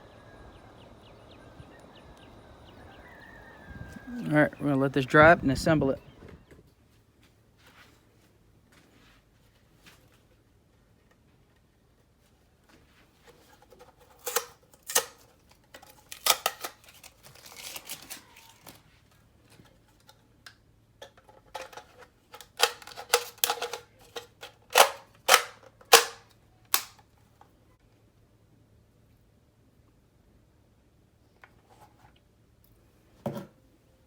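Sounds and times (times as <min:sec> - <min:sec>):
plastic magazine parts clicking: 0:14.2 - 0:18.2, 0:21.0 - 0:27.0.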